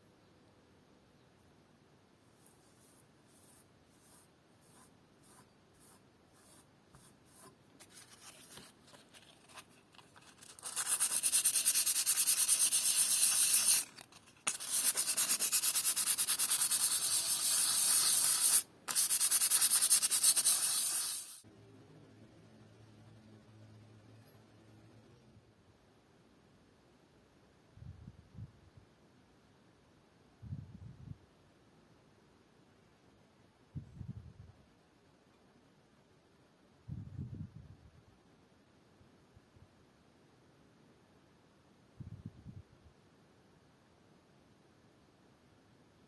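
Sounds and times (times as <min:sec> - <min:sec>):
abrasive sanding: 0:10.4 - 0:21.4.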